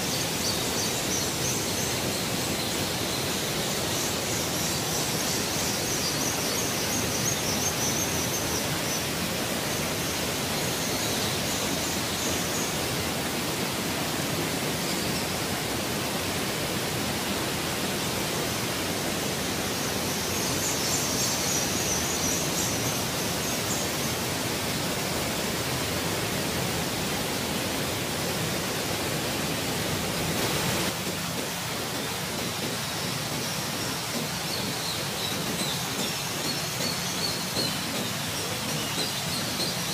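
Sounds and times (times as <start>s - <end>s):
waterfall pouring into pool: 22.5s - 39.9s.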